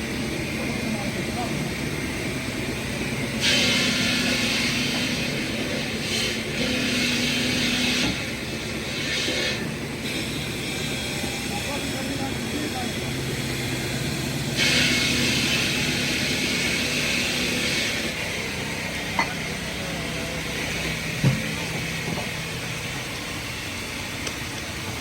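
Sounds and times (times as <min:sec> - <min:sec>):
loud air hiss: 0:01.2 - 0:24.2
truck engine running: 0:09.7 - 0:25.0.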